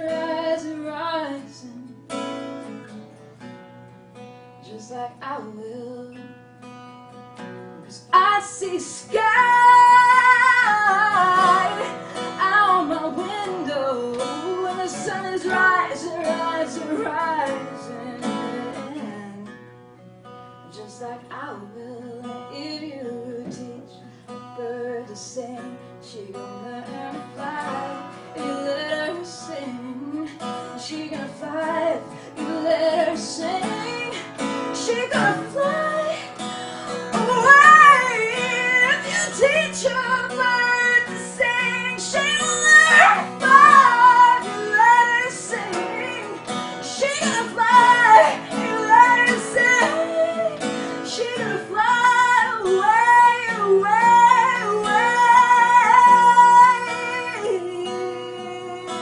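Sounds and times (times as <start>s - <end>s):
woman singing: 0.0s - 3.1s, 4.6s - 6.7s, 7.8s - 19.7s, 20.6s - 59.0s
strummed acoustic guitar: 0.0s - 59.0s.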